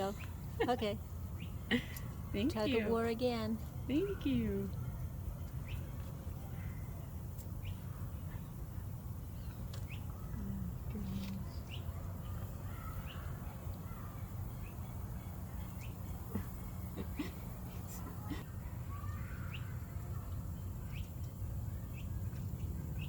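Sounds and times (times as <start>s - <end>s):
bird chirps and calls: 18.9s - 21.2s.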